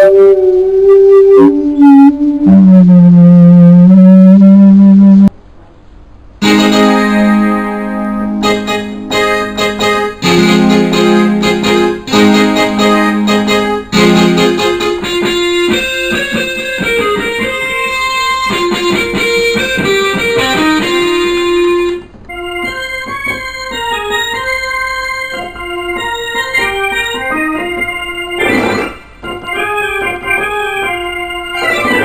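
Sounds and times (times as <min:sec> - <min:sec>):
electronic keyboard playing: 0:00.0 - 0:05.3, 0:06.4 - 0:32.0.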